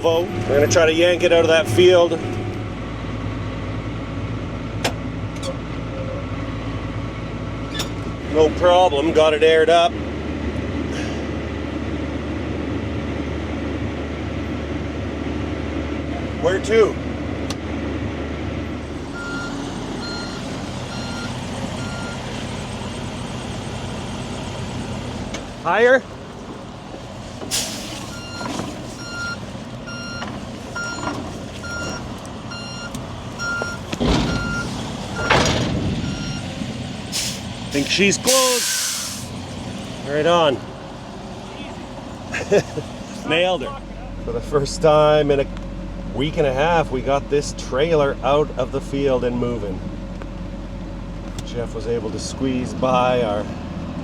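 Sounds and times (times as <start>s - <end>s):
truck reversing alarm beeping: 0.0s - 3.3s, 19.0s - 25.6s, 27.5s - 39.3s
truck engine rumbling: 0.0s - 54.0s
road hiss: 26.6s - 29.8s, 36.6s - 40.1s.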